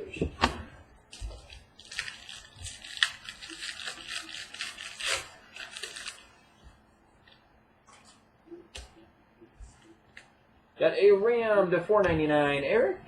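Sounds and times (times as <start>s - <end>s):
foil card pack crinkling: 1.1s - 6.4s.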